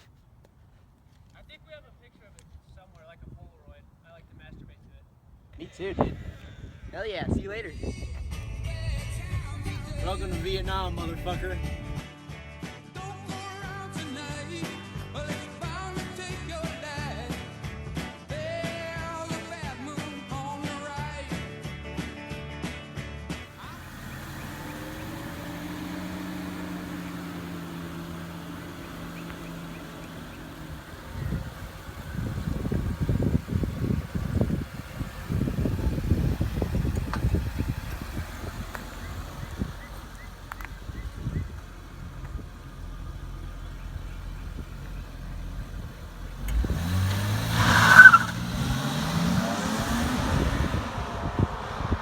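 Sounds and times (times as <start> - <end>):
car engine droning: 5.6 - 12.0, 23.5 - 52.0
tyre squeal: 47.4 - 48.4.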